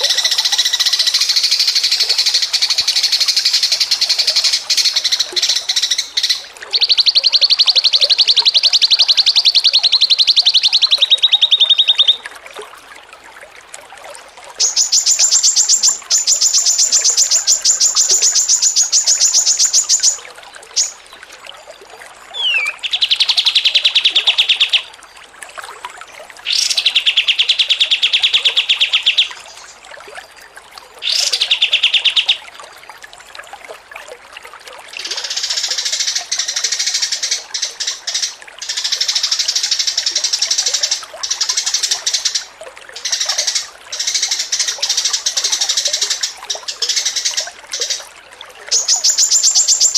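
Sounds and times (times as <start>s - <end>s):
songbird singing rapid trills: 0.0s - 12.2s, 14.6s - 21.2s, 22.3s - 24.9s, 26.4s - 29.8s, 31.0s - 32.5s, 48.7s - 49.9s.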